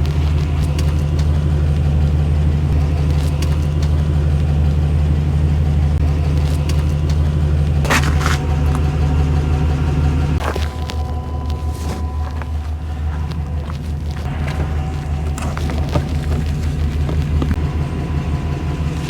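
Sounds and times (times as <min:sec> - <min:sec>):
motor droning: 0:00.0 - 0:19.0.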